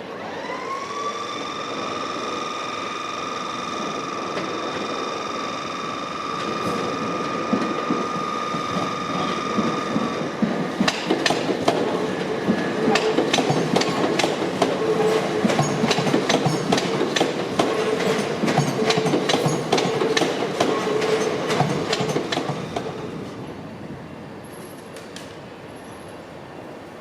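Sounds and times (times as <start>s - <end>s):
steady high whine: 0.0s - 10.4s
train wheels clicking over rail joints: 2.0s - 23.0s.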